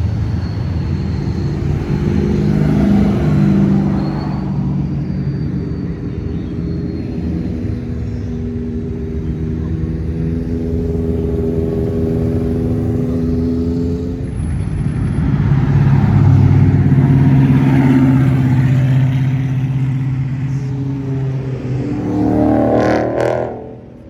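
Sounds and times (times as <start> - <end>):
cars driving past: 0.0 - 24.0
deep car engine note: 15.1 - 24.0.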